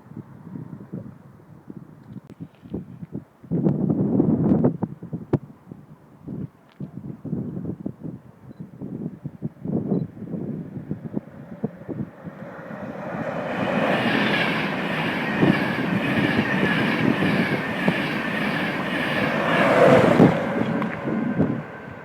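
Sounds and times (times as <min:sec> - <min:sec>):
train passing: 0:10.4 - 0:22.0.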